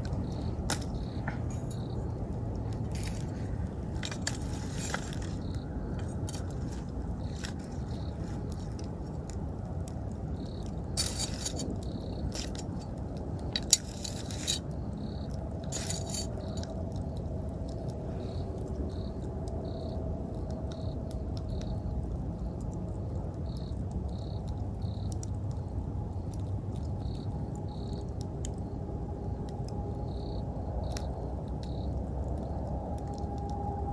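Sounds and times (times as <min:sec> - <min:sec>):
campfire crackling and popping: 0:00.0 - 0:33.9
crickets chirping: 0:00.0 - 0:33.9.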